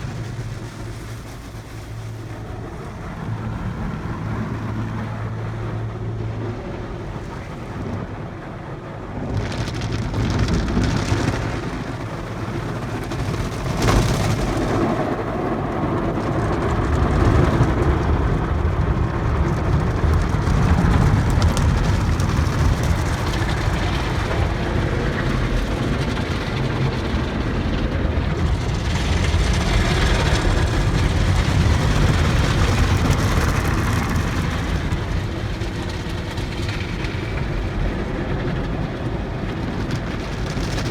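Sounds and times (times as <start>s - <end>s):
steady low rumble: 0.0s - 40.9s.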